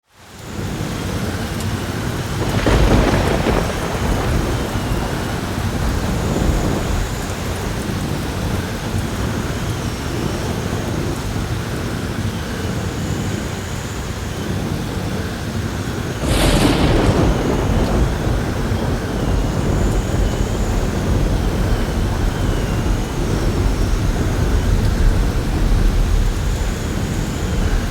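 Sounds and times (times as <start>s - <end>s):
heavy rain pouring: 0.2s - 27.9s
thunder: 1.7s - 11.4s, 16.0s - 27.9s.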